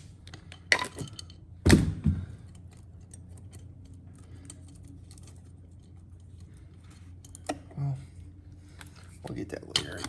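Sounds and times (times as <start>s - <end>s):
low steady hum: 0.0s - 10.0s
loud knocks of metal parts: 0.7s - 2.3s.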